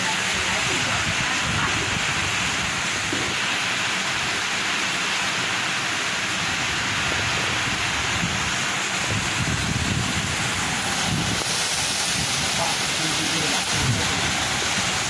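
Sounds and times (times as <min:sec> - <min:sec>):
strong wind: 0:00.0 - 0:04.5, 0:06.2 - 0:15.0
heavy rain pouring: 0:00.0 - 0:15.0.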